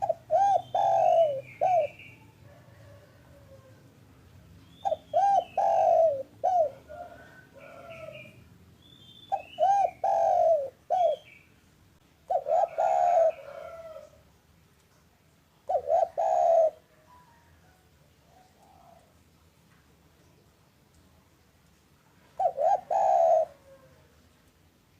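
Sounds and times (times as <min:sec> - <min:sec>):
small birds chirping: 0:00.0 - 0:03.6, 0:04.3 - 0:11.6
dove cooing: 0:00.0 - 0:03.9, 0:04.7 - 0:08.4, 0:09.3 - 0:11.4, 0:12.2 - 0:14.2, 0:15.6 - 0:17.0, 0:18.3 - 0:19.2, 0:22.3 - 0:24.2.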